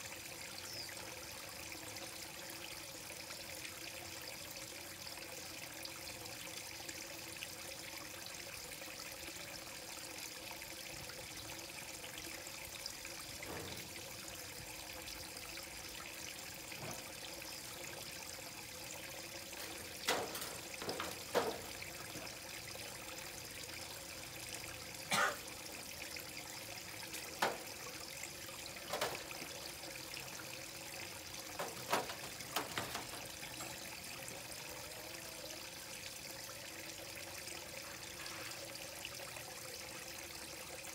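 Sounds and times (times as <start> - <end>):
water trickling into a pond: 0.0 - 40.9
water splashes: 13.4 - 34.6.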